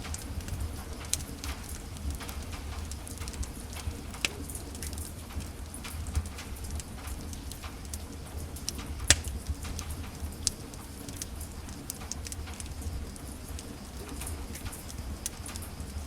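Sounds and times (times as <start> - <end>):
wood fire crackling: 0.0 - 16.0
loud pop of fire: 9.0 - 9.6.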